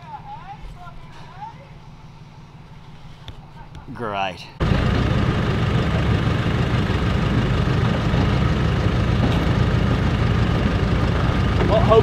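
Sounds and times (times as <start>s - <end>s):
engine running at low revs: 4.6s - 12.0s.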